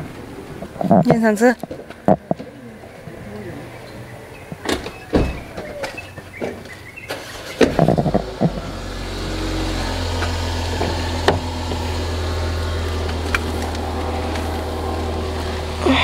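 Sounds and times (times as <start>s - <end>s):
car engine idling: 6.3s - 16.0s.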